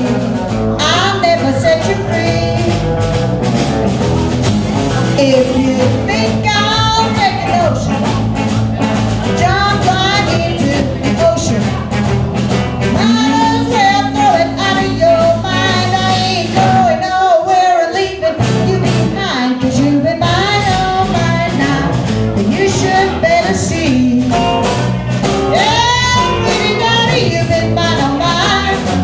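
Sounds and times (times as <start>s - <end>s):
women singing: 0.0s - 3.0s, 5.1s - 8.3s, 9.2s - 12.0s, 12.9s - 24.5s, 25.5s - 29.0s
rock and roll band playing: 0.0s - 29.0s.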